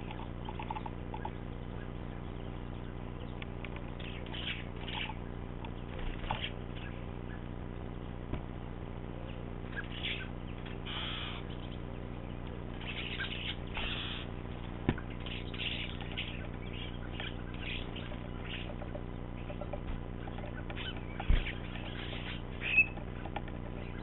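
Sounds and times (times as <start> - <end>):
scratchy bird sounds: 0.0 - 8.3, 8.9 - 24.0
low hum: 0.0 - 24.0
wing flutters: 3.6 - 6.9.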